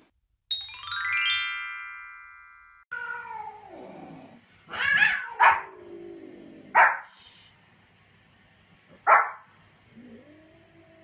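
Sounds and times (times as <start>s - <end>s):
rising bell-like chimes: 0.5s - 2.9s
small dog barking: 4.8s - 5.8s, 6.7s - 7.1s, 9.0s - 9.4s.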